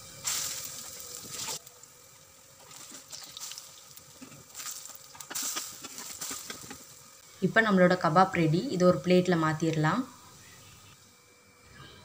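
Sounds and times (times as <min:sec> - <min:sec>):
oil sizzling in a pan: 0:00.0 - 0:07.2.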